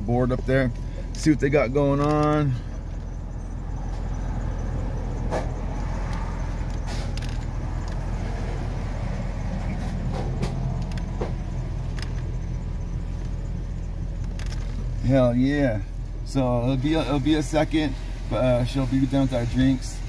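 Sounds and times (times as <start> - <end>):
car engine idling: 0.0 - 20.0
light clicks and knocks: 9.5 - 12.5.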